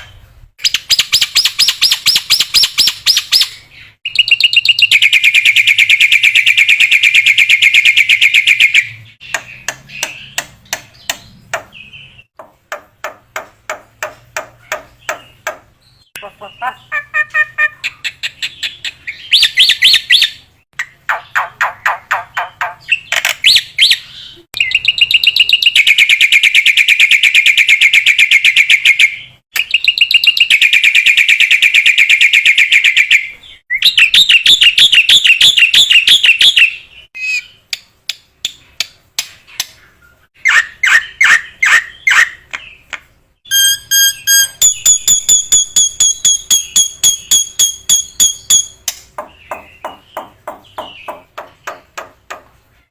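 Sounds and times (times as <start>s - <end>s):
bird whistling held notes: 43.5s - 48.8s.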